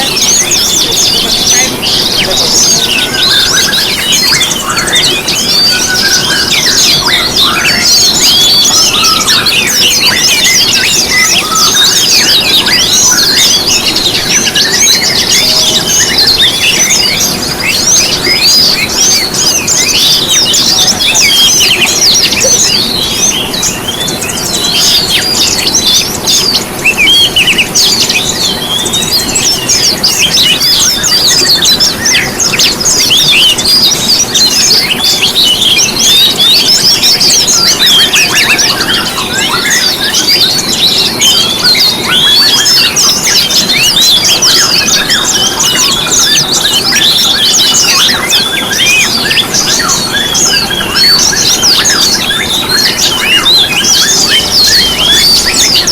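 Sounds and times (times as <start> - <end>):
songbirds chirping and twittering: 0.0 - 55.9.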